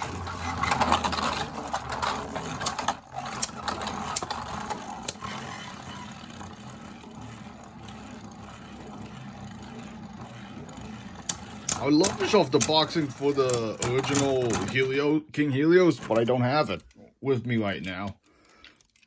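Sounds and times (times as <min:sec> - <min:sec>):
spinning tops whirring: 0:00.0 - 0:15.1.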